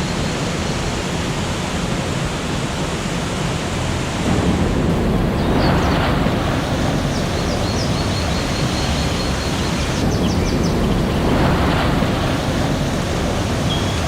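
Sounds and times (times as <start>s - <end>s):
water rushing: 0.0s - 14.0s
bird chirping: 6.7s - 11.2s, 13.6s - 14.0s.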